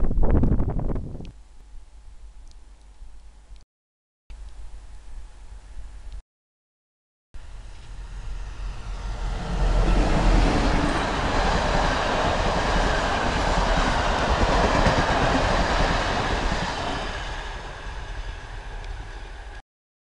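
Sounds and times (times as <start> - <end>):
train wheels rumbling on rails: 7.6 - 19.6.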